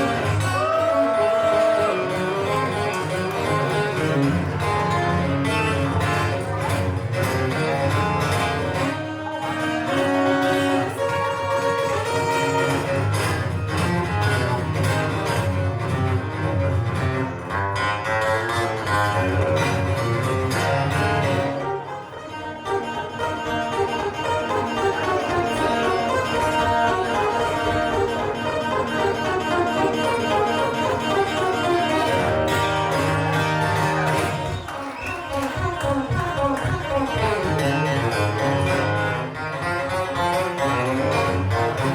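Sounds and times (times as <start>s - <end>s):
fiddle bowing: 0.0s - 17.6s, 18.2s - 41.9s
instrumental guitar music: 0.0s - 41.9s.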